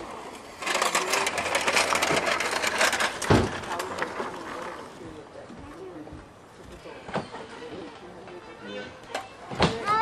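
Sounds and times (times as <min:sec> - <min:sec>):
toy trucks scraping in dirt: 0:00.0 - 0:05.1
thump: 0:03.3 - 0:03.6.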